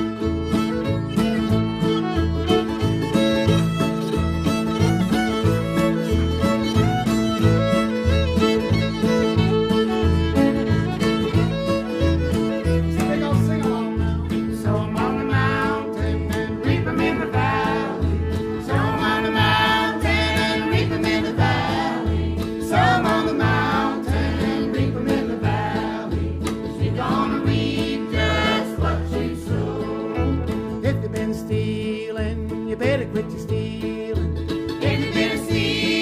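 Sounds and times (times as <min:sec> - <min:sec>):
guitar: 0:00.0 - 0:36.0
steady bass line: 0:00.0 - 0:36.0
voices singing: 0:14.5 - 0:31.2, 0:34.8 - 0:36.0.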